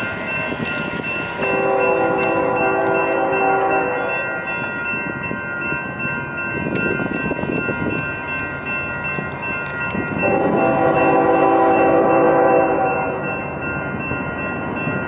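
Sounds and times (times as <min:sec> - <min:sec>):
crossing warning bell ringing: 0:00.0 - 0:15.0
train rumbling on rails: 0:00.0 - 0:15.0
train horn: 0:01.4 - 0:04.4, 0:10.2 - 0:13.5.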